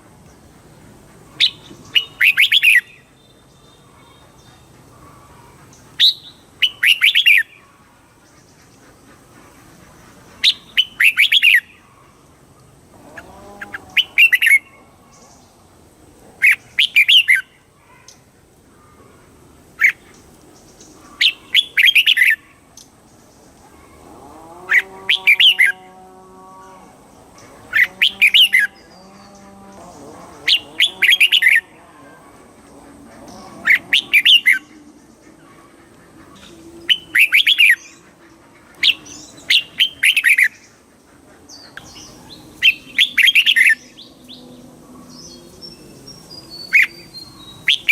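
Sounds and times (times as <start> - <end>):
bird singing bubbling phrases: 27.7 - 31.8, 33.1 - 35.4, 36.3 - 38.2, 41.6 - 44.4.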